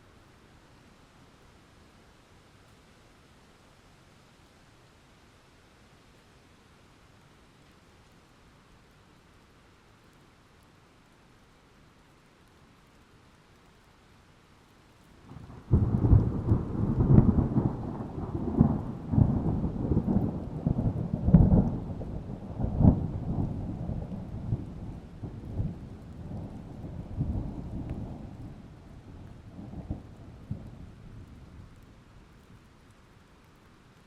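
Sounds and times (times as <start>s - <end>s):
thunder clap and rolling rumble: 15.3s - 31.8s.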